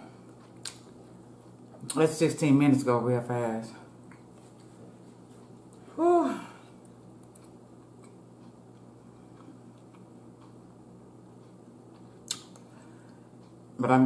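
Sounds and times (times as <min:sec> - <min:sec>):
low room hum: 0:00.0 - 0:14.0
person chewing food: 0:00.1 - 0:02.0, 0:06.7 - 0:13.6
short falling vocal sound: 0:06.0 - 0:06.6
mouth clicks: 0:12.2 - 0:12.6.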